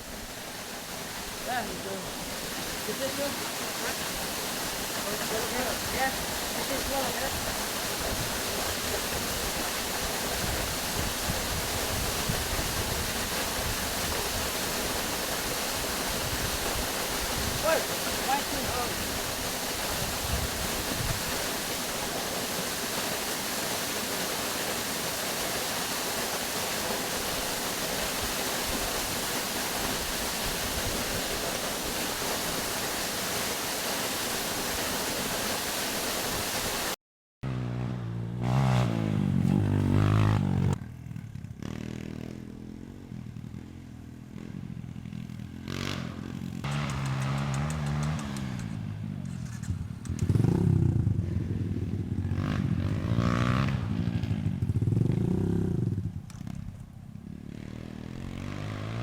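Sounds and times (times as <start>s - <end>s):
waterfall rushing: 0.0s - 37.0s
dirt bike engine revving: 37.4s - 56.2s, 57.2s - 59.0s.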